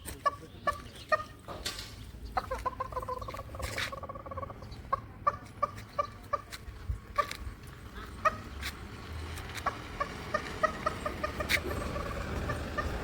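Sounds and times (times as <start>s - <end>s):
person making turkey calls: 0.0s - 1.4s, 2.4s - 7.4s, 9.6s - 13.0s
turkey clucking: 0.0s - 1.6s, 2.2s - 8.8s, 9.4s - 13.0s.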